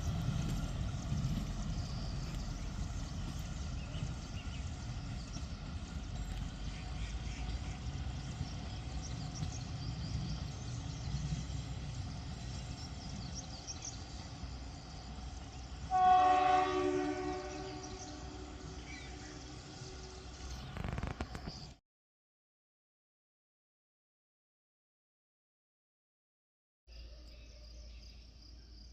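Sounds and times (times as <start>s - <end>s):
train rumbling: 0.0s - 21.8s
train horn blast: 15.9s - 19.3s.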